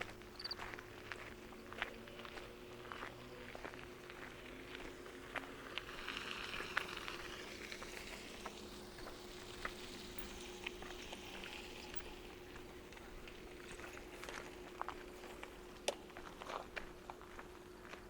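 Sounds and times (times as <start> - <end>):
faint steady hum: 0.0 - 18.0
footsteps crunching on gravel: 0.0 - 18.0
soft hiss: 4.4 - 16.1.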